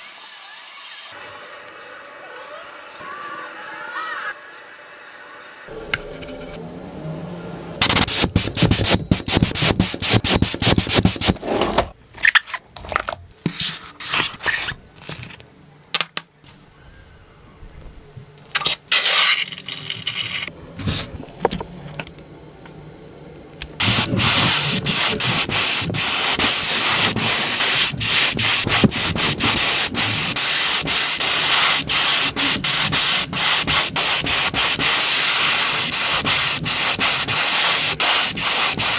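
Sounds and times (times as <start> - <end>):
sanding: 23.8 - 38.9.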